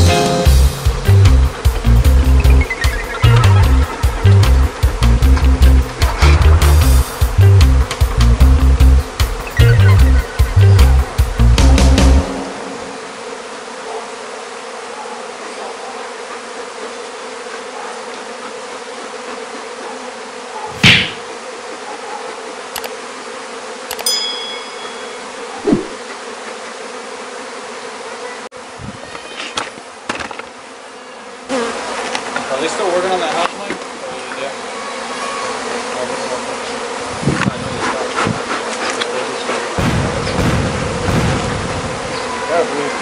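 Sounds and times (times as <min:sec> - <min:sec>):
honeybees buzzing: 0:00.0 - 0:43.0
short high clink: 0:24.0 - 0:25.3
loud knock: 0:39.8 - 0:41.8.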